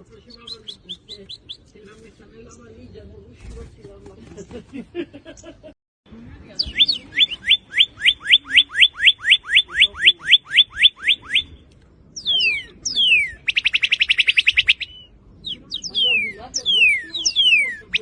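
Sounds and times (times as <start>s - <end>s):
cardinal whistles and trill: 6.6s - 11.6s, 12.2s - 18.0s.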